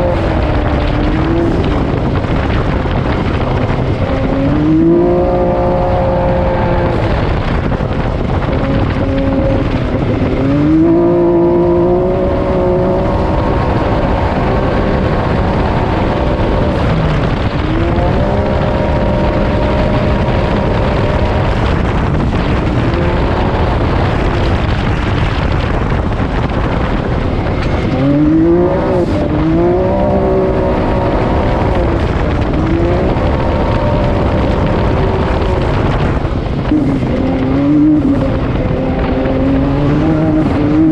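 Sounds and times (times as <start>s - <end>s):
engine running hard: 0.0s - 40.9s.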